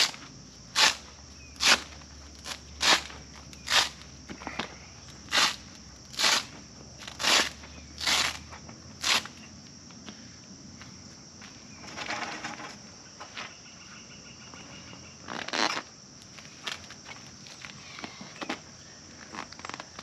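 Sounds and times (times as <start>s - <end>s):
high insect drone: 0.0s - 20.0s
rustling and knocking of parts: 11.8s - 13.6s.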